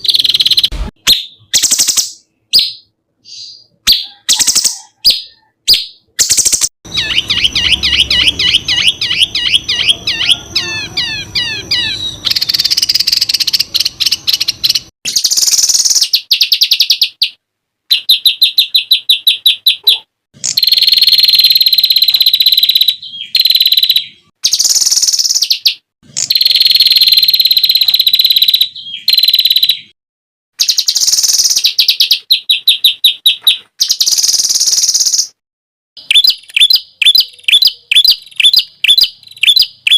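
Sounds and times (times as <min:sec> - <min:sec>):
background noise: 0:00.0 - 0:26.8
fast repeated bird chirping: 0:00.0 - 0:30.0, 0:30.6 - 0:35.4, 0:36.0 - 0:39.9.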